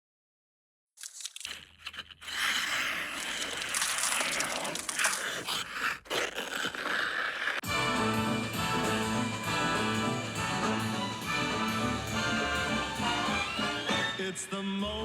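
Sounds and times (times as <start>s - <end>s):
skate blades scraping ice: 1.0s - 7.8s
music: 7.6s - 15.0s.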